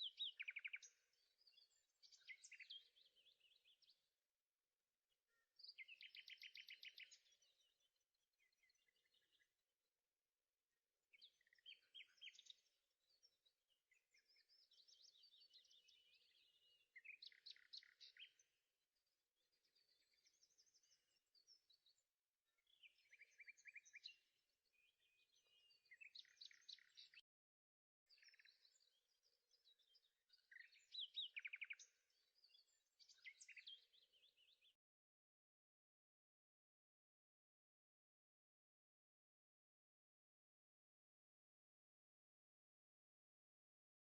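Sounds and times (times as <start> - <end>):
songbird chirping and trilling: 0.0 - 4.2, 5.2 - 9.9, 11.0 - 35.0.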